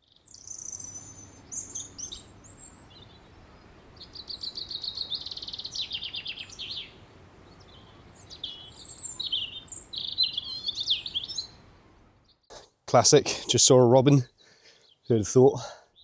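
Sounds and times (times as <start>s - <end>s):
bird singing high trills: 0.0s - 12.5s.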